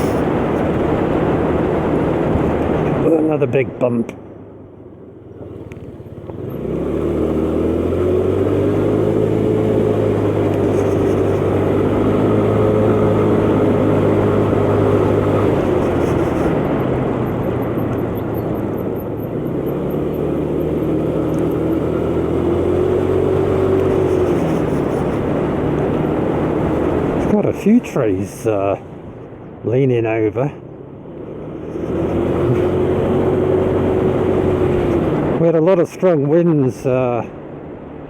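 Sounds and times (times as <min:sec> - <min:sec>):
motor scooter engine running: 0:05.4 - 0:26.6.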